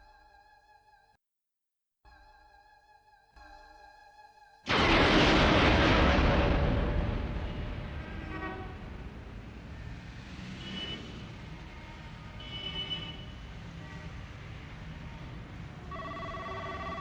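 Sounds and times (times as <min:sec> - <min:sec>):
traffic rumble: 0:04.7 - 0:17.0.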